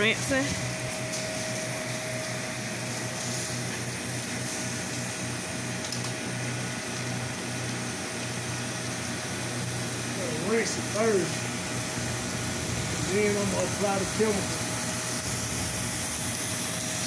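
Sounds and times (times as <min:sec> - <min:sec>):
pressure washer pump hum: 0:00.0 - 0:17.0
water spray hissing: 0:02.7 - 0:05.0, 0:10.0 - 0:17.0.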